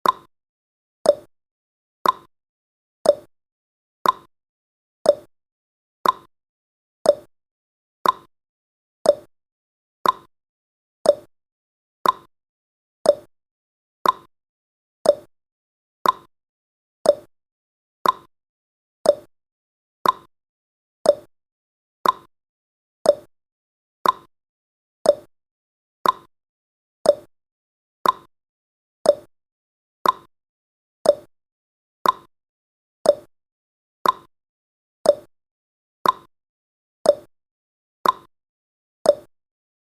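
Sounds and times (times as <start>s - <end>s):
clock ticks: 0.0s - 0.3s, 1.1s - 1.3s, 2.0s - 2.3s, 3.1s - 3.3s, 4.0s - 4.3s, 5.1s - 5.3s, 6.0s - 6.3s, 7.1s - 7.3s, 8.0s - 8.3s, 9.1s - 9.3s, 10.0s - 10.3s, 11.1s - 11.3s, 12.0s - 12.3s, 13.1s - 13.3s, 14.0s - 14.3s, 15.0s - 15.3s, 16.0s - 16.3s, 17.0s - 17.3s, 18.0s - 18.3s, 19.0s - 19.3s, 20.0s - 20.3s, 21.0s - 21.3s, 22.0s - 22.3s, 23.0s - 23.3s, 24.0s - 24.3s, 25.0s - 25.3s, 26.0s - 26.3s, 27.0s - 27.3s, 28.0s - 28.3s, 29.0s - 29.3s, 30.0s - 30.3s, 31.0s - 31.3s, 32.0s - 32.3s, 33.1s - 33.3s, 34.0s - 34.3s, 35.1s - 35.3s, 36.0s - 36.3s, 37.1s - 37.3s, 38.0s - 38.3s, 39.1s - 39.3s.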